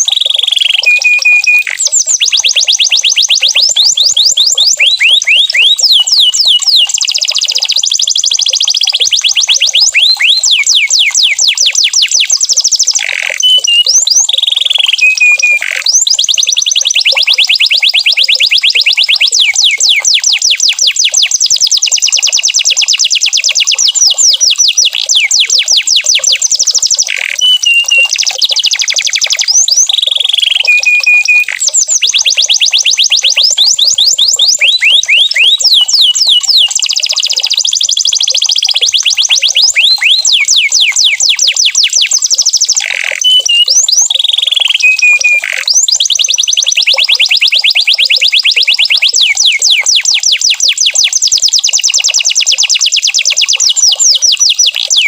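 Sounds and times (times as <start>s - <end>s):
canary singing trills: 0.0s - 55.0s
held whistled notes: 0.7s - 1.8s, 13.4s - 14.0s, 14.9s - 15.7s, 27.4s - 28.3s, 30.4s - 31.6s, 43.2s - 43.9s, 44.7s - 45.7s.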